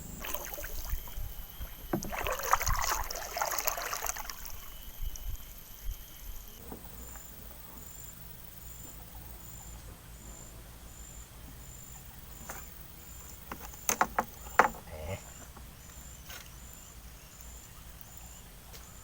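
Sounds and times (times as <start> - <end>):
insect chirping: 0.0 - 19.0
low steady background noise: 0.0 - 19.0
sharp knocks: 13.5 - 14.8.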